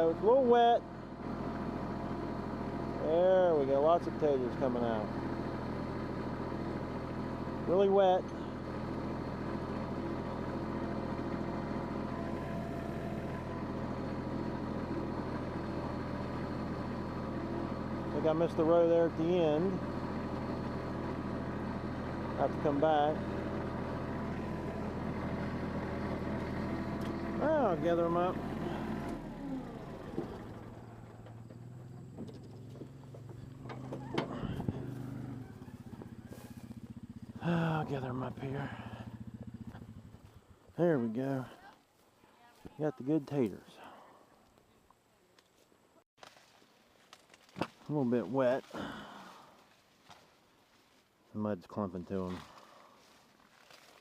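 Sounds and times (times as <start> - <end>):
tractor diesel engine running: 0.0 - 41.7.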